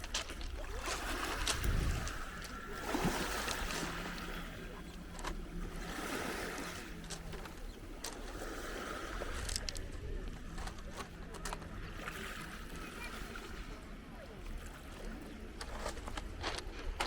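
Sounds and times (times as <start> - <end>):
surf washing on beach: 0.0 - 10.6
steady low hum: 0.0 - 17.0.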